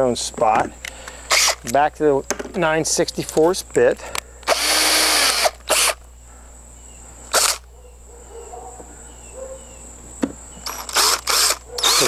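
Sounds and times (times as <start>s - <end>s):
power drill spinning: 1.2s - 1.7s, 4.4s - 6.0s, 7.3s - 7.6s, 10.6s - 12.0s.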